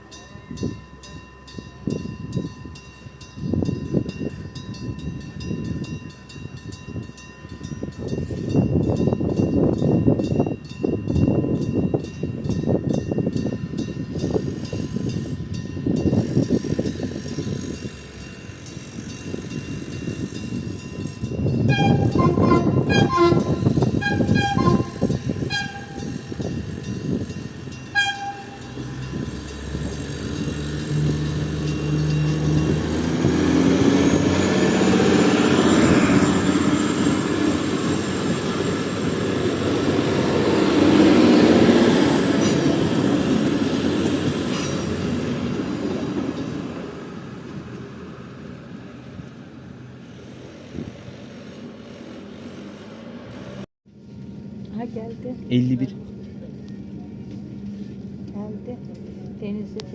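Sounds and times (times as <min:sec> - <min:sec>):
train rumbling past: 0:00.0 - 0:59.9
train horn short blasts: 0:21.7 - 0:26.2, 0:27.9 - 0:28.8.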